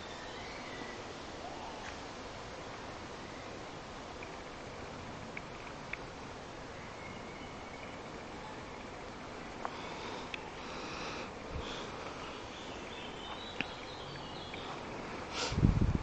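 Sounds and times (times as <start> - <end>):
faint bird chirps: 0.0 - 1.9, 6.7 - 11.0, 12.2 - 14.8
wind rush across microphone: 14.8 - 16.0.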